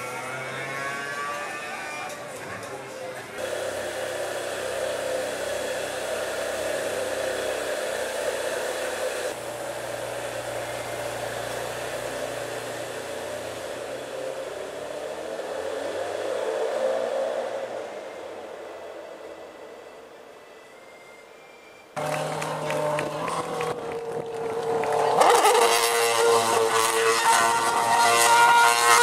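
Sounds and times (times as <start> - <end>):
car engine running: 3.3 - 16.4, 22.0 - 29.0
strong rushing hiss: 3.4 - 19.4.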